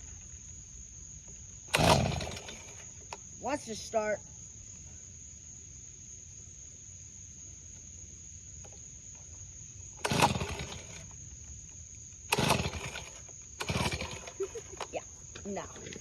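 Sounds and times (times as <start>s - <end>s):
leaf blower engine cranking: 1.6s - 3.9s, 9.9s - 16.0s.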